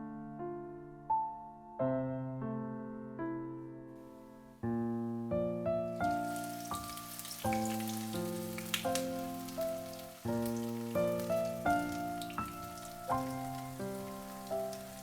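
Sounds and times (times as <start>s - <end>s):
gentle piano music: 0.0s - 15.0s
fine crackling hiss: 5.9s - 15.0s.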